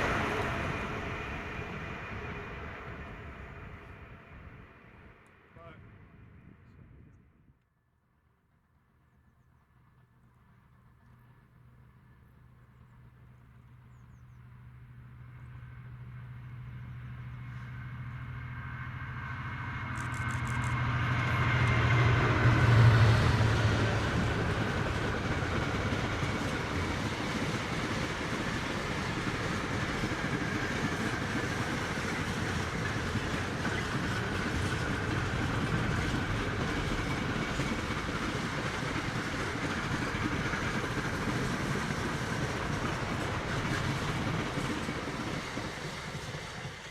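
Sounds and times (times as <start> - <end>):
train carriages rumbling: 0.0 - 5.2, 15.7 - 46.9.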